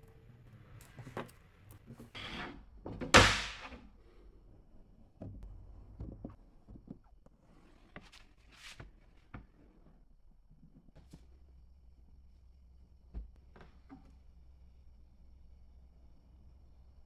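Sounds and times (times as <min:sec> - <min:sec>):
objects knocking and clunking: 0:01.9 - 0:03.8.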